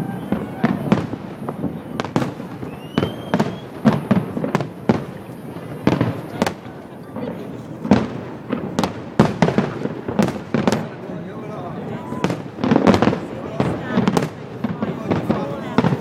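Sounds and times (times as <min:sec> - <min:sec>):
rising firework whistle: 0:00.0 - 0:04.7, 0:11.9 - 0:13.2
fireworks bangs: 0:00.0 - 0:16.0.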